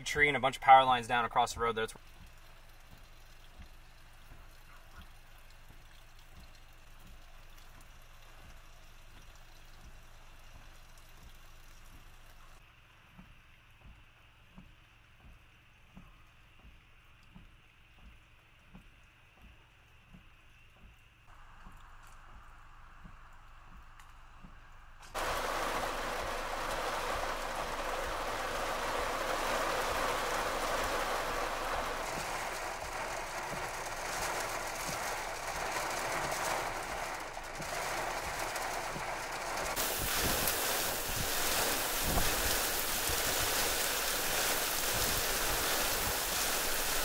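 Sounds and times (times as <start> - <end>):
heavy rain pouring: 25.2 - 47.0.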